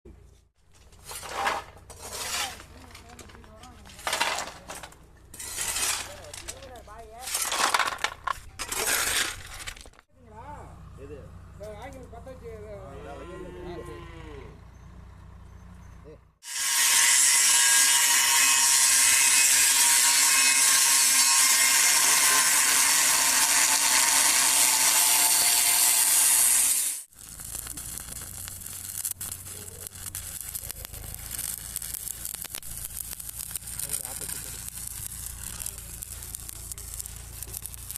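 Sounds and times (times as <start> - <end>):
arc welding crackling: 1.0 - 7.5, 16.4 - 37.9
power tool cutting steel: 5.3 - 6.4, 16.4 - 37.9.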